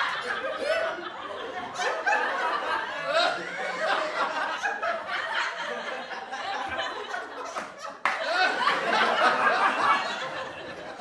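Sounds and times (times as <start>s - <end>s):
people laughing: 0.0s - 11.0s.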